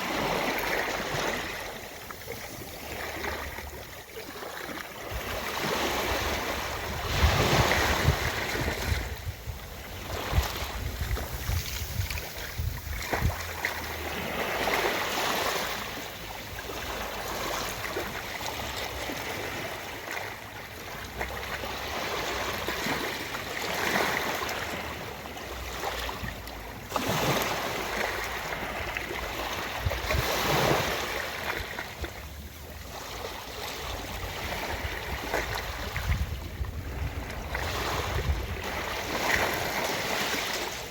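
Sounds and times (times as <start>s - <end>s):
ocean waves washing onto beach: 0.0s - 40.9s.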